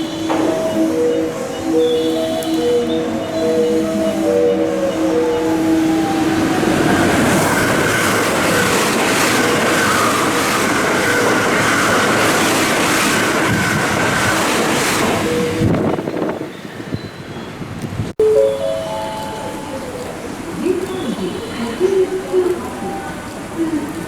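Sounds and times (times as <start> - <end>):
melody sliding down in pitch: 0.0 - 7.9, 18.2 - 20.7
high train whine: 0.0 - 24.0.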